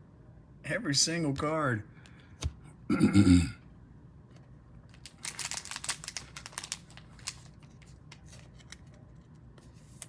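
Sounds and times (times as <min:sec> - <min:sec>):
packaging crinkling: 0:04.9 - 0:09.0.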